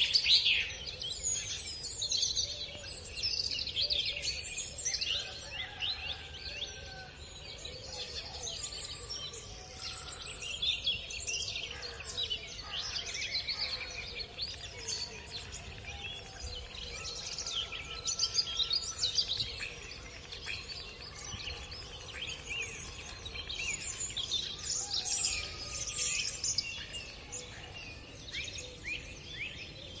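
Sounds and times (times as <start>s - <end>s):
small birds chirping: 12.8s - 30.0s.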